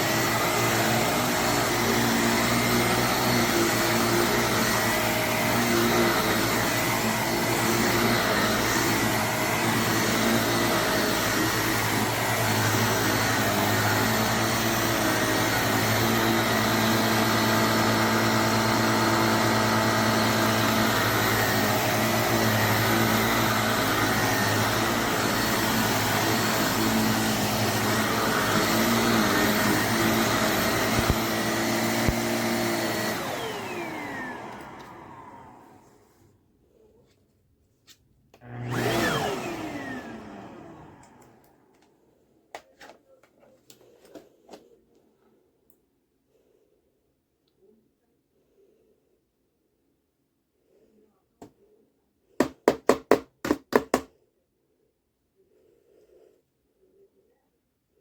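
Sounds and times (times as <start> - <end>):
handheld vacuum motor whine: 0.0 - 36.1, 38.4 - 41.9.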